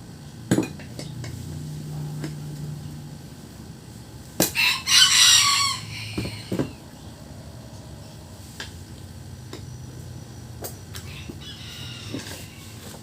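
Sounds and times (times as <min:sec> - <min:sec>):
rooster crowing: 0:04.4 - 0:06.8, 0:10.9 - 0:13.0.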